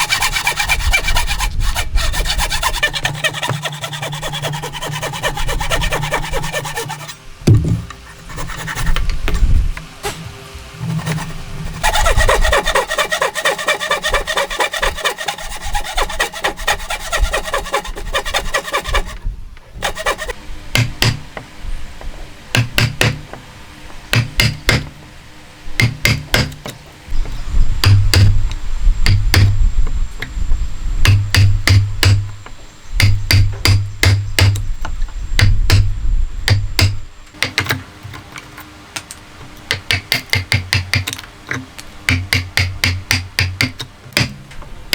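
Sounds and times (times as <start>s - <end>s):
rubbing strokes on wood: 0.0s - 7.2s, 10.8s - 19.2s, 19.8s - 20.4s
hammer strikes on wood: 20.8s - 21.3s, 22.6s - 23.2s, 24.2s - 24.9s, 25.8s - 26.6s, 27.8s - 28.4s, 29.1s - 29.6s, 31.1s - 32.2s, 33.0s - 34.6s, 35.4s - 35.9s, 39.7s - 41.1s, 42.1s - 44.4s.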